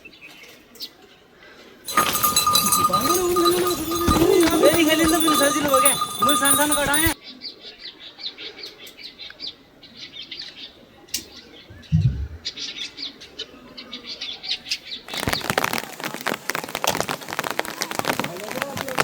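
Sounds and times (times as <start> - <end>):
birds chirping: 1.9 - 7.2
loud dense crackling rustle: 15.1 - 19.0.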